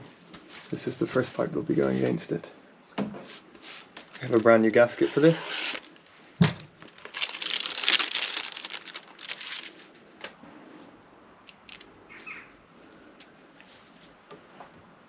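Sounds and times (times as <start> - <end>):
packaging crinkling and rustling: 3.9 - 10.4.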